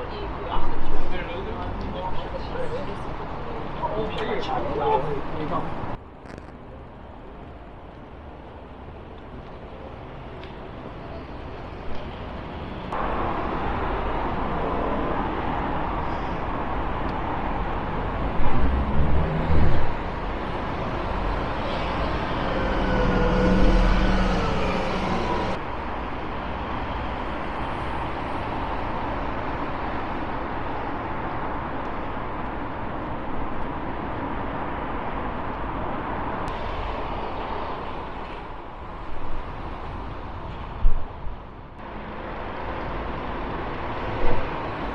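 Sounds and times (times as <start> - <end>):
road traffic noise: 0.0 - 44.9
vehicle passing loudly: 17.7 - 25.7.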